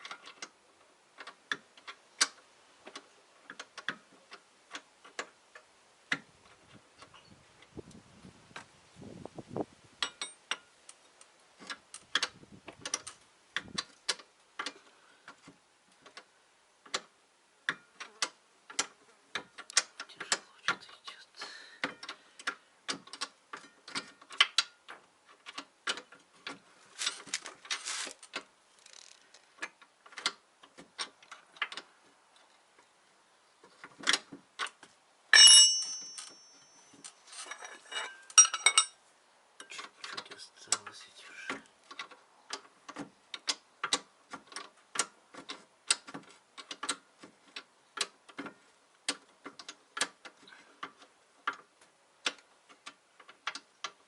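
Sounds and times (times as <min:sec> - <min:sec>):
ringing metallic clank: 0:35.4 - 0:38.9.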